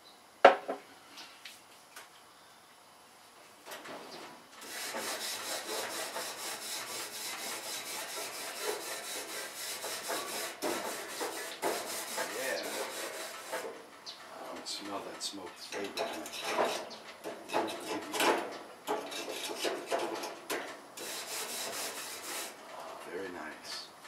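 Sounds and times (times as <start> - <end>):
grill surface being scraped: 4.6 - 13.8, 15.9 - 20.4, 21.0 - 22.6.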